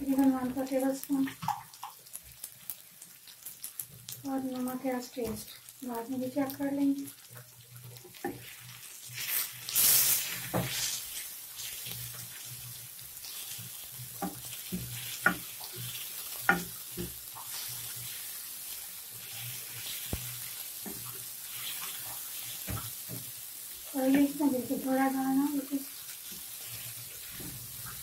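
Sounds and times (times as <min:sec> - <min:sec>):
vegetables sizzling on a griddle: 0:00.0 - 0:28.0
spatula scraping a pan: 0:08.2 - 0:23.0.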